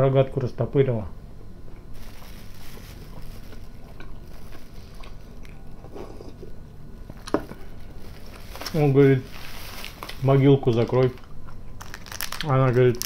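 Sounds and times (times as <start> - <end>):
person chewing food: 2.5 - 8.7
person sipping tea: 2.6 - 6.6.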